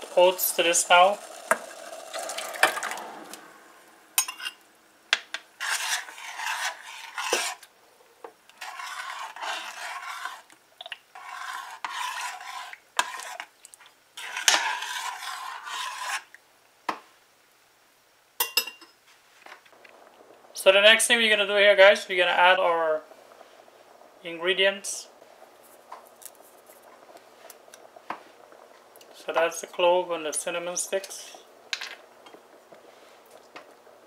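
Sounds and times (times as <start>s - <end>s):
spoon scraping oats from bowl: 5.6s - 7.7s, 8.5s - 13.5s, 14.2s - 16.4s.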